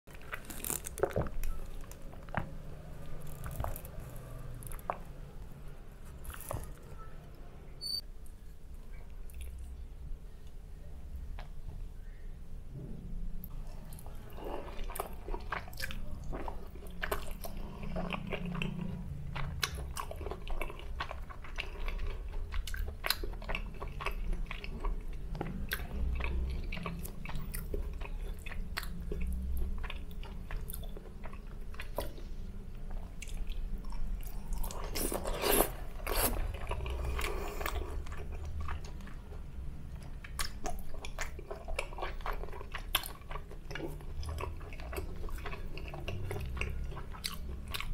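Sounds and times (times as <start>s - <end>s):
person chewing: 13.5s - 47.9s.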